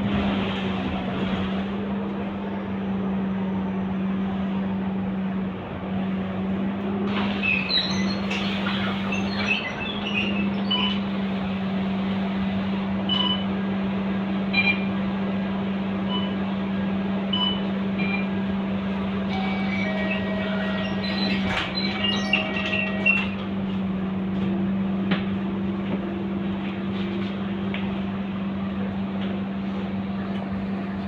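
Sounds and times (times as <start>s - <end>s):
bus engine humming: 0.0s - 31.0s
high chirps and squeaks: 7.4s - 10.9s, 19.3s - 23.4s.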